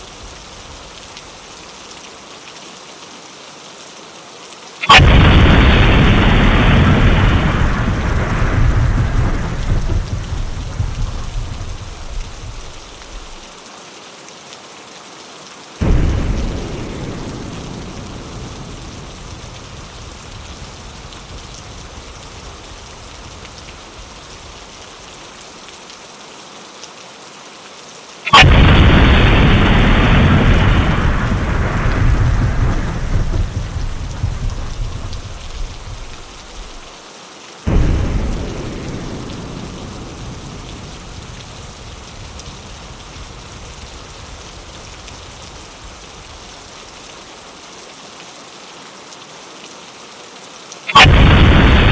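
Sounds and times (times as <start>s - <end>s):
steady rain: 0.0s - 51.9s
thunderclap rumbling: 4.8s - 13.5s, 15.8s - 25.0s, 28.3s - 37.0s, 37.7s - 46.8s, 51.0s - 51.9s.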